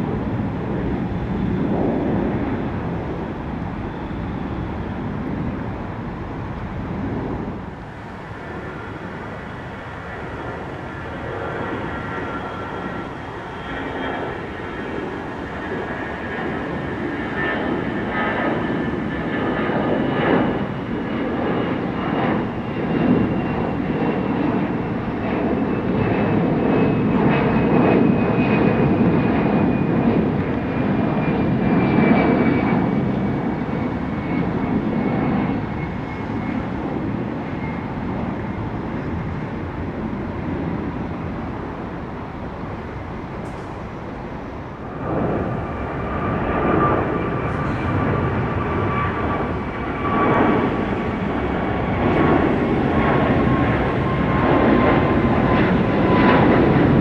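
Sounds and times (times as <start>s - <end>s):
high engine whine: 0.0s - 57.0s
jet airliner passing overhead: 0.0s - 57.0s.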